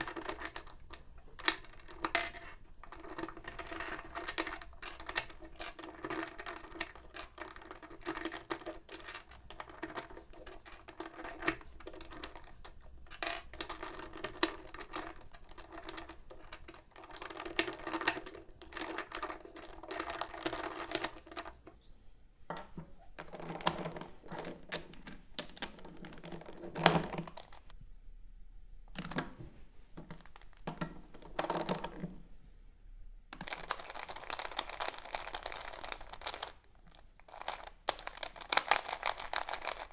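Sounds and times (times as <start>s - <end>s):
plastic puzzle cube clicking: 0.0s - 21.6s, 37.3s - 39.9s.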